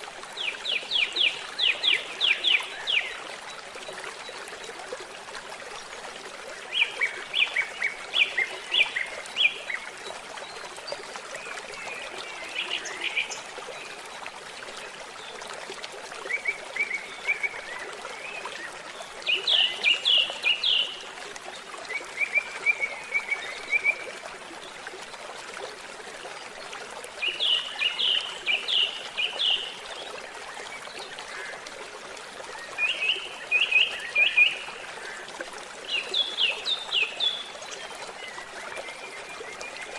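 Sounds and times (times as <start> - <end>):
water trickling: 0.0 - 39.9
songbird singing: 19.2 - 21.0.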